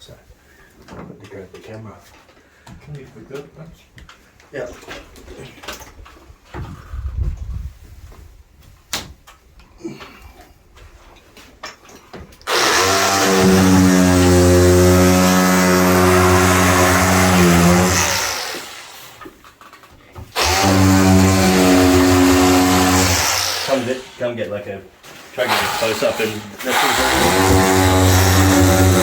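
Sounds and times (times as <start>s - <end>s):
power tool motor running: 12.5s - 19.0s, 20.4s - 24.2s, 25.4s - 29.0s.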